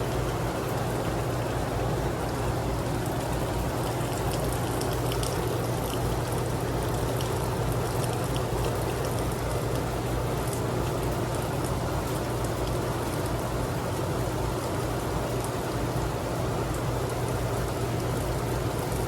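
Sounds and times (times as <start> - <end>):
raindrop ticks: 3.1 - 13.4.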